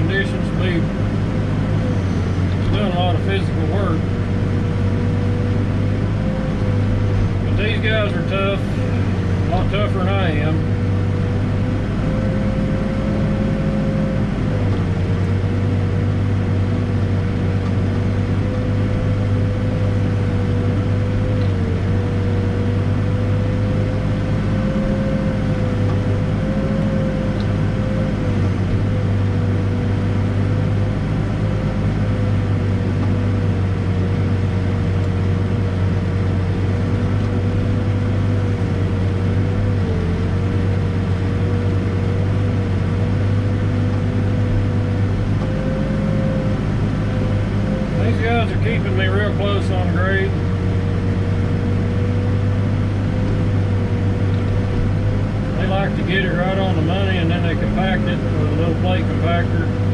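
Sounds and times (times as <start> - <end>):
backhoe diesel engine running: 0.0 - 59.9
steady whine: 0.0 - 59.9.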